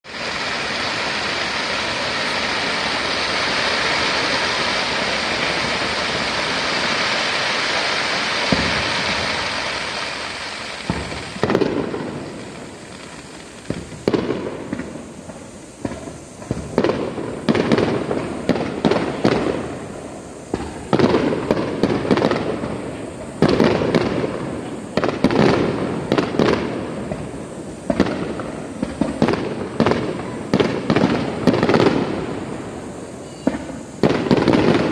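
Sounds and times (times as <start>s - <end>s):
fireworks crackling: 0.0s - 34.9s
firework shells bursting: 0.1s - 19.9s.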